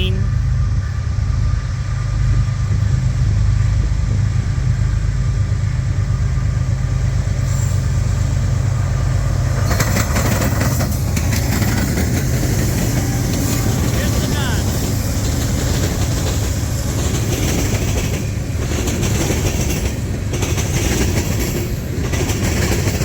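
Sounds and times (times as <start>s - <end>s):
diesel locomotives rumbling: 0.0s - 23.0s
rapid clatter of wheels: 9.5s - 13.7s, 15.2s - 23.0s.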